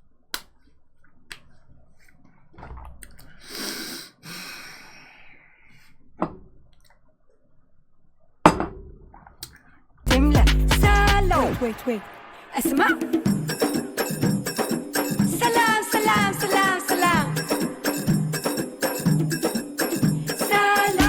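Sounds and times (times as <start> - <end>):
breathy rush of noise: 11.8 - 12.7.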